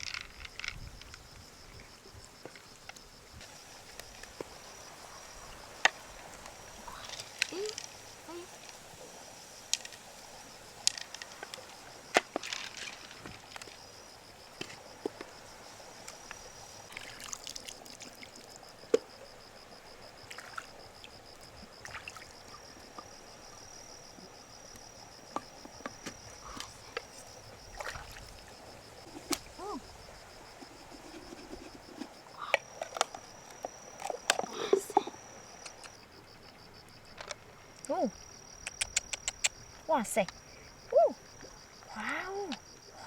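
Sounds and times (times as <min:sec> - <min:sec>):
pulsing insect trill: 0:00.0 - 0:43.0
mussel shells clicking: 0:35.6 - 0:36.0, 0:38.6 - 0:39.6.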